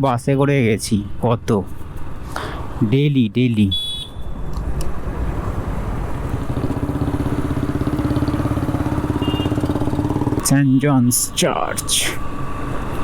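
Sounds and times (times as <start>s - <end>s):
motorcycle exhaust puttering: 6.2s - 10.5s.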